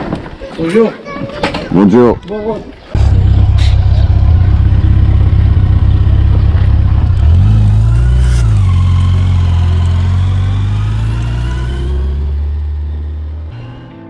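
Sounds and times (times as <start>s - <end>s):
motorcycle engine rumble: 2.9s - 13.6s.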